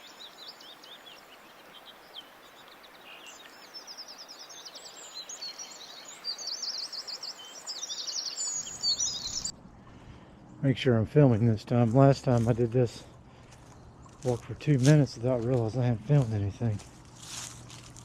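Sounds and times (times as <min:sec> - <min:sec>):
steady background hiss: 0:00.0 - 0:13.4
songbirds chirping: 0:00.0 - 0:18.0.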